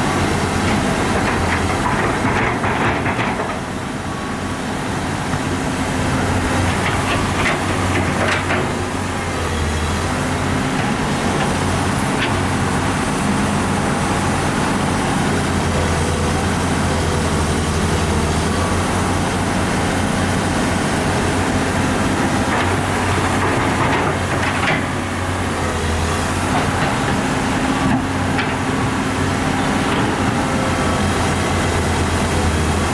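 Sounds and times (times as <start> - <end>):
diesel engine under load: 0.0 - 32.9.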